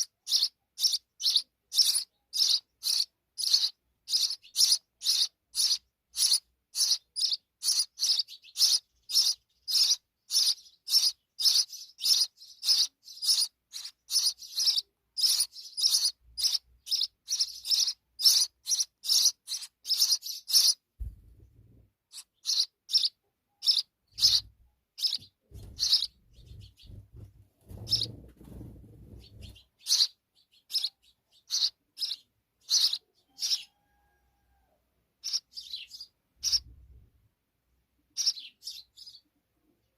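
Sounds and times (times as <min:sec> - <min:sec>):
sparrow chirping: 0:00.0 - 0:34.5, 0:35.2 - 0:37.1, 0:38.1 - 0:39.9
low rumbling thumps: 0:21.0 - 0:21.9, 0:25.4 - 0:29.6.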